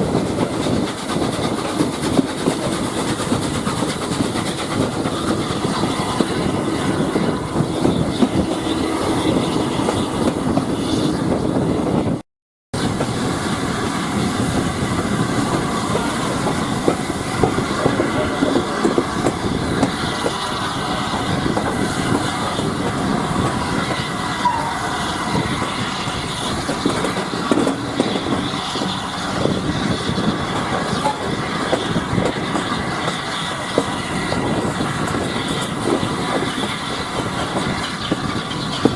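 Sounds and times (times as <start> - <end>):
train wheels rumbling: 0.0 - 12.2, 12.8 - 38.9
wheels clacking over rails: 12.9 - 38.9.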